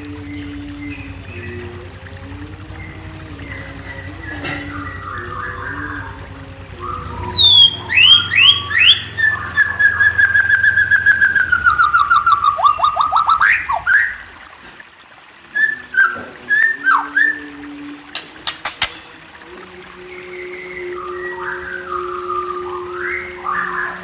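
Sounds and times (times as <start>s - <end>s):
songbird singing: 0.0s - 1.8s, 2.5s - 14.4s, 15.5s - 19.2s.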